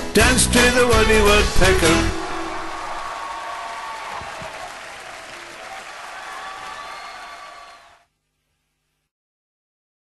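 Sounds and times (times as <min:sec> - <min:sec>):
audience applauding and cheering: 0:01.7 - 0:08.0.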